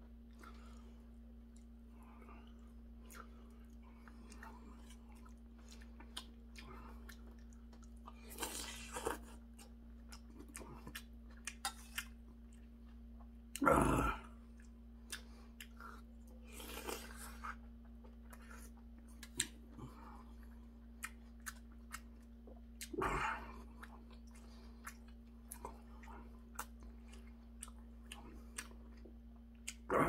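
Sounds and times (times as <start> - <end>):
man chewing and eating: 0.0 - 30.0.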